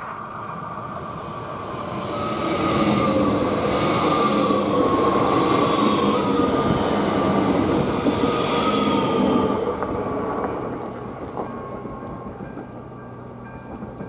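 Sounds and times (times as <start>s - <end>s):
train wheels rushing on rail: 0.0s - 14.0s.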